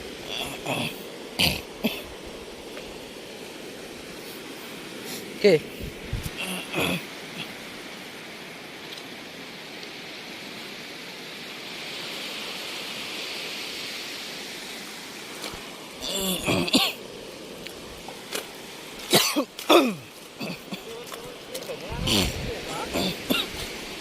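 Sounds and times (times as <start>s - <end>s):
sea water washing over reef: 0.0s - 24.0s
man's voice: 20.7s - 23.5s.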